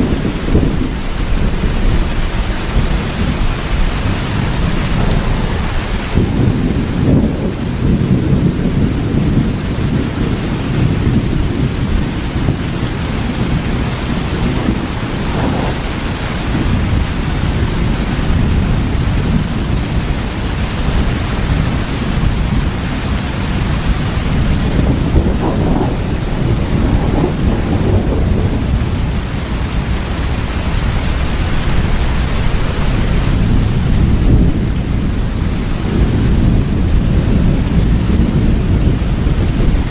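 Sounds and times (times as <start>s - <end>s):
steady rain: 0.0s - 39.9s
low rumble: 0.5s - 10.0s, 11.5s - 19.2s, 23.6s - 30.1s.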